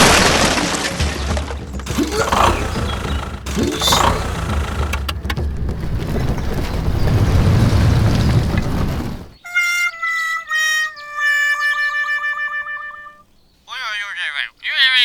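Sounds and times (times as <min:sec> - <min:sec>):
knocks and rattles: 0:00.0 - 0:09.4
vehicle engine rumbling: 0:00.0 - 0:09.4.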